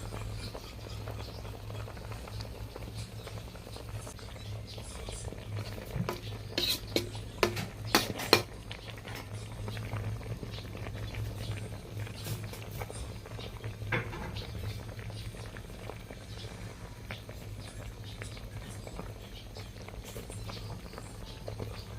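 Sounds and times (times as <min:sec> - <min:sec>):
soup bubbling in a pot: 0:00.0 - 0:21.9
utensils clinking on a pot: 0:05.1 - 0:10.0.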